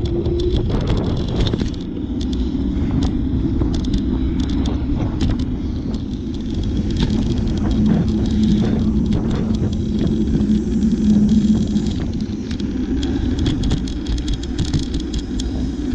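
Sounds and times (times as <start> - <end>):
bicycle rattling clicks: 0.0 - 15.9
bicycle riding rumble: 0.0 - 15.9.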